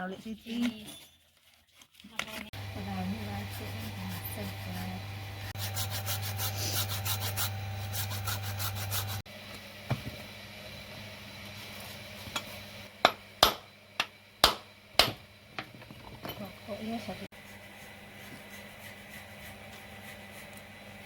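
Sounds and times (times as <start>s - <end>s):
steady low hum: 2.5s - 21.0s
rhythmic scraping strokes: 2.8s - 9.2s.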